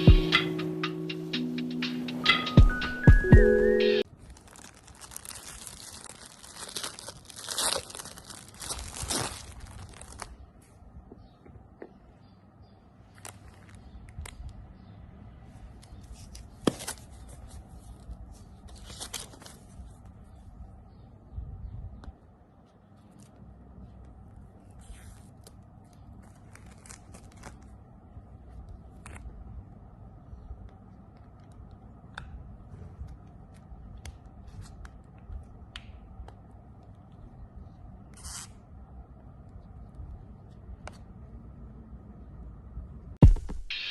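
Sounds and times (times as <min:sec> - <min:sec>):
packaging rustling and scraping: 0:04.1 - 0:10.3.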